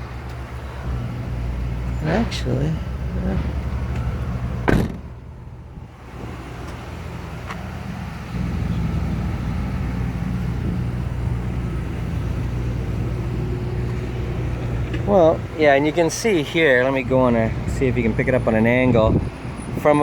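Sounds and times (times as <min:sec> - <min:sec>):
vehicle engine idling: 0:00.0 - 0:20.0
car door shutting: 0:03.4 - 0:05.2.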